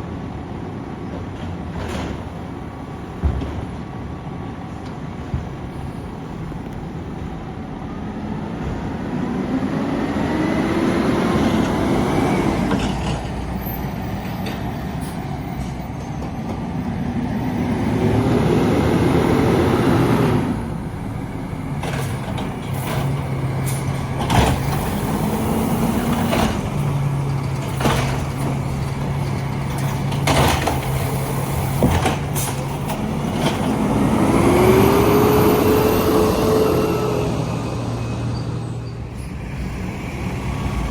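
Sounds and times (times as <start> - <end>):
garbage truck engine revving: 8.3 - 14.0, 17.5 - 40.9.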